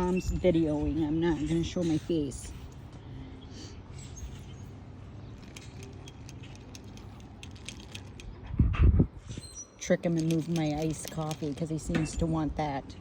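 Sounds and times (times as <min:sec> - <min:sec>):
steady low rumble: 0:00.0 - 0:09.4
light jingling clicks: 0:09.8 - 0:12.3.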